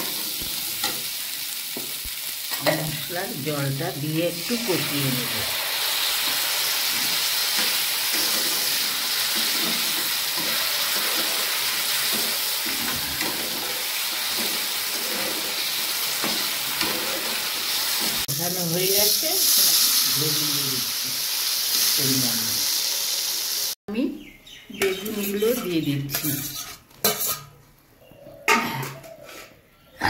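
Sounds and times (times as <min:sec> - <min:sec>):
potatoes sizzling in oil: 0:00.0 - 0:23.8
metal spatula scraping pan: 0:06.0 - 0:18.2, 0:25.0 - 0:27.6, 0:28.8 - 0:29.6.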